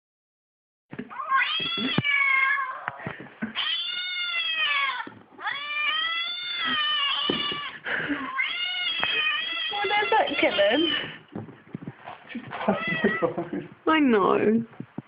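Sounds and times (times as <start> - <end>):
cat yowling: 1.1 - 3.0, 3.6 - 11.2, 12.6 - 13.4.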